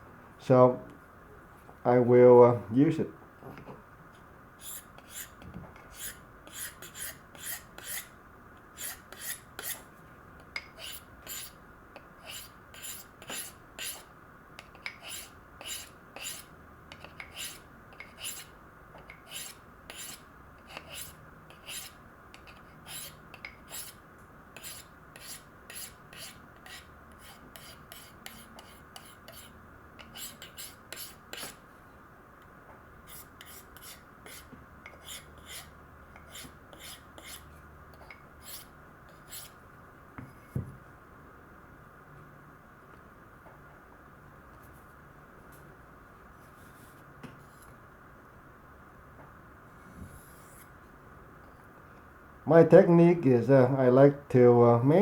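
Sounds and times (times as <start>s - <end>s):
knife scraping on sharpening stone: 4.6s - 5.3s, 6.0s - 8.1s, 8.8s - 9.8s, 10.6s - 11.5s, 12.2s - 14.0s, 14.8s - 18.5s, 19.1s - 24.0s, 24.6s - 31.6s, 33.1s - 39.6s.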